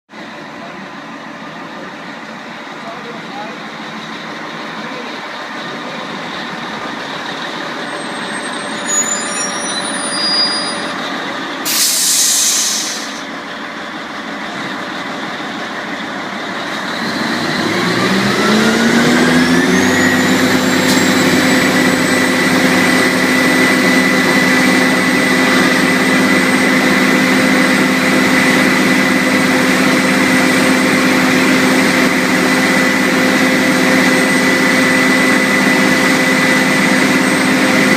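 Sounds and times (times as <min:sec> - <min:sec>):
fire truck engine running: 0:00.1 - 0:37.9
air brake hiss: 0:11.6 - 0:13.3.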